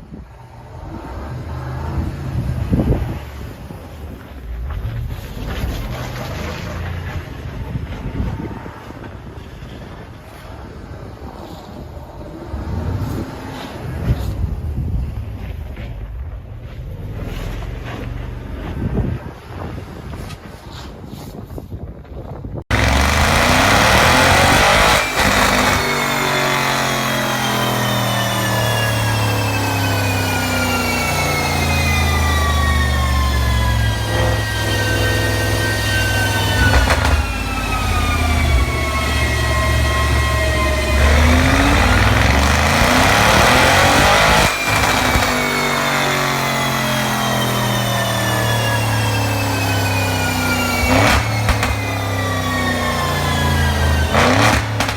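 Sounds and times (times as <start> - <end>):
engine revving loudly: 22.7 - 54.9
exhaust rushing noise: 22.7 - 54.9.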